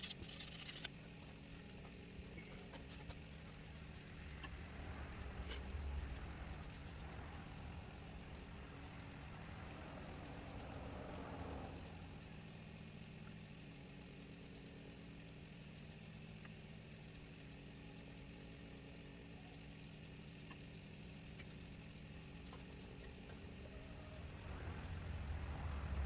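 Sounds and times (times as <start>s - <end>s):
electric motor humming: 0.0s - 16.3s.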